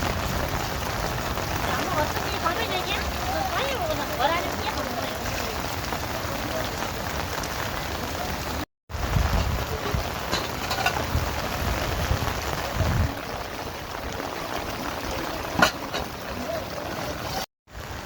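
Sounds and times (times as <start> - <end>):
running water: 0.0 - 18.0
steady rain: 0.0 - 18.0.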